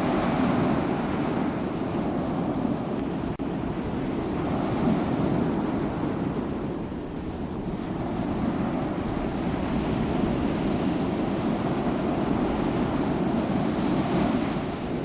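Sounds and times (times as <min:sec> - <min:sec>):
sea waves breaking on shore: 0:00.0 - 0:15.0
wind noise on microphone: 0:00.0 - 0:15.0.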